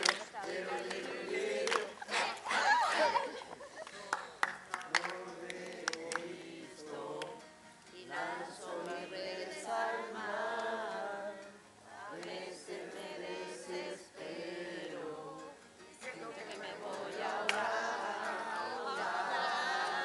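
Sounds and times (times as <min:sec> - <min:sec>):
hand claps: 0:00.0 - 0:02.3, 0:03.8 - 0:06.4, 0:07.1 - 0:07.4, 0:17.4 - 0:17.7
group of voices singing: 0:00.0 - 0:03.5, 0:04.7 - 0:20.0.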